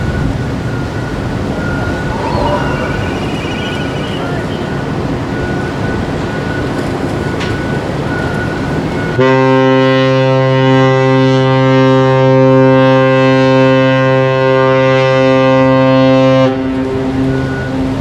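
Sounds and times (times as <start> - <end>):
deep ship's whistle blast: 1.5 - 5.6.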